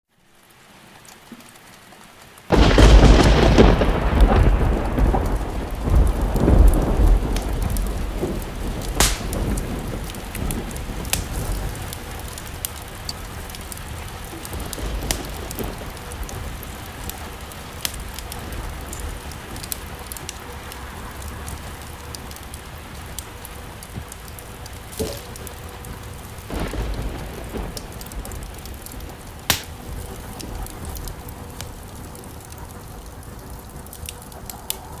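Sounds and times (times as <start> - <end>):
steady rain: 0.1 - 35.0
thunder clap and rumble: 2.5 - 35.0.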